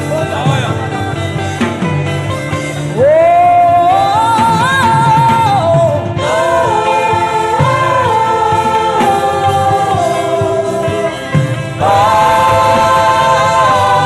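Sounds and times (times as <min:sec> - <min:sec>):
instrumental backing: 0:00.0 - 0:14.0
person singing wordless melody: 0:02.9 - 0:14.0.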